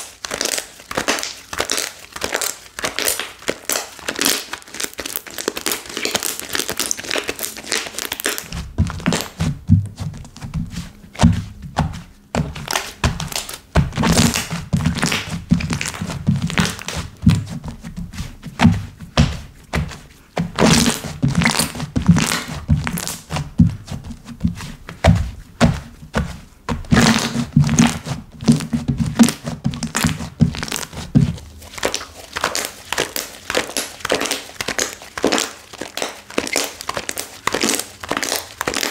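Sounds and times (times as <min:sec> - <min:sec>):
slime crackling and popping: 0:00.0 - 0:09.5, 0:12.4 - 0:17.5, 0:20.5 - 0:23.8, 0:26.8 - 0:38.9
dull low thuds: 0:08.5 - 0:31.6.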